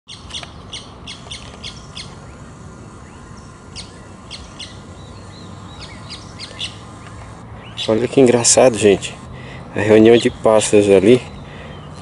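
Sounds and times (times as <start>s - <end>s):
small birds calling: 0.1s - 12.0s.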